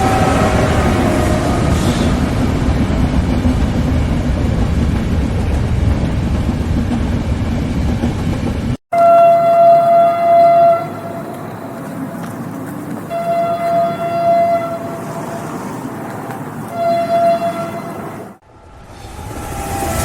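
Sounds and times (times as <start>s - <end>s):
train horn blasts: 0.0s - 2.4s, 8.9s - 15.7s, 16.7s - 18.3s
passing train rumble: 0.0s - 20.0s.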